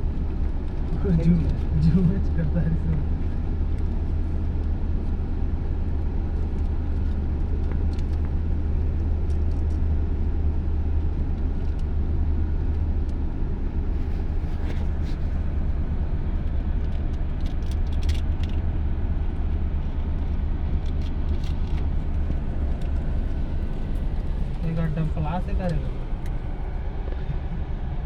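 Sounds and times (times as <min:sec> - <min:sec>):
excavator diesel engine droning: 0:18.8 - 0:28.0.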